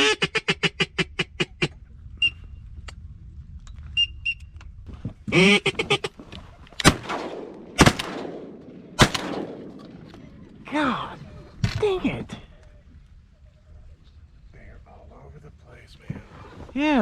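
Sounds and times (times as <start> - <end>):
duck quacking: 0.0 - 1.8, 5.3 - 6.2
shotgun shots: 6.8 - 10.4.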